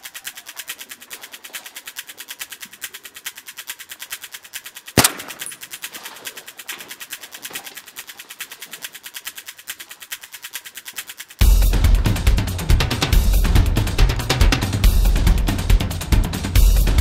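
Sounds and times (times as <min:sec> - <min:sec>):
music with fast ticking beat: 0:00.0 - 0:17.0
loud gunshot: 0:05.0 - 0:05.5.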